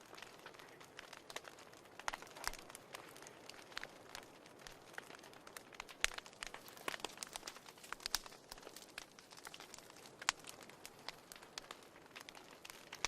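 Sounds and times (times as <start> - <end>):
fire popping and snapping: 0.0 - 13.0
soft hiss of flame: 0.0 - 13.0.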